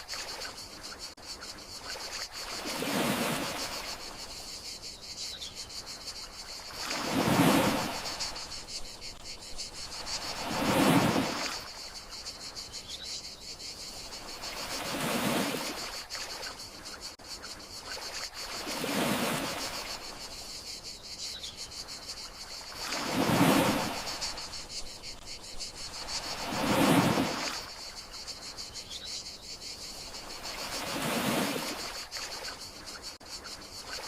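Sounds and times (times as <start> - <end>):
crickets trilling: 0.0 - 34.0
sea waves washing in: 1.8 - 4.4, 6.3 - 12.3, 14.0 - 16.6, 18.1 - 20.4, 22.6 - 24.8, 25.8 - 28.2, 30.0 - 32.6.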